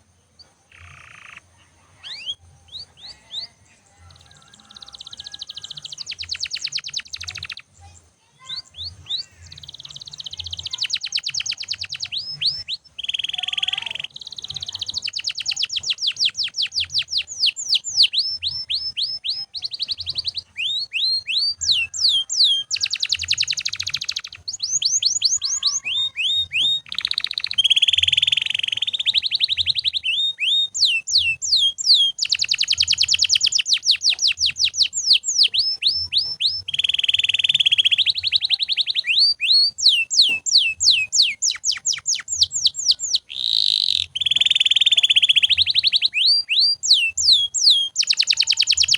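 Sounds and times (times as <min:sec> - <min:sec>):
canary singing: 0:00.0 - 0:48.9.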